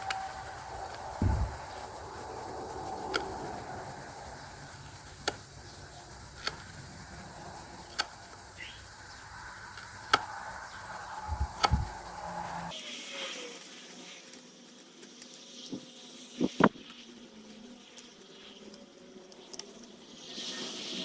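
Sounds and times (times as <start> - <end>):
low hum: 0.0 - 12.7
tool knocking on wood: 1.2 - 1.6
heavy thump: 1.2 - 1.8.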